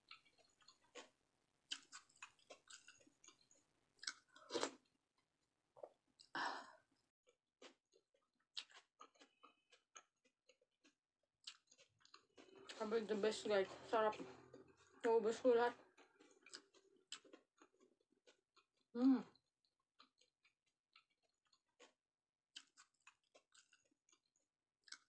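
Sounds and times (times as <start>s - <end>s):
person chewing: 0.1s - 1.1s, 1.7s - 4.9s, 7.2s - 12.8s, 14.1s - 15.0s, 15.8s - 25.0s.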